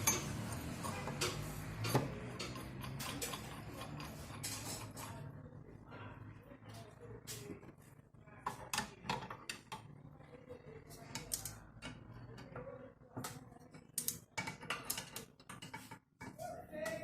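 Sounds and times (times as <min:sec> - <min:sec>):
tools clicking and tapping on metal: 0:00.0 - 0:05.2, 0:11.1 - 0:17.0.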